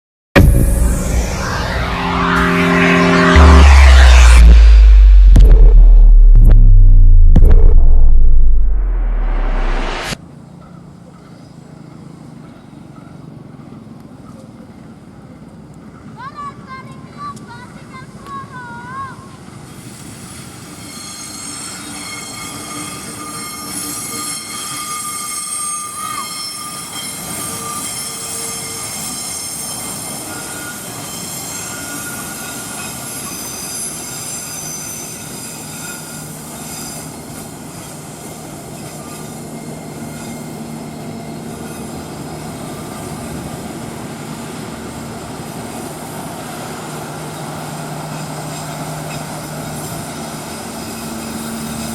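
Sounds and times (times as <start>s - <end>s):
train wheels rumbling on rail: 26.8s - 51.9s.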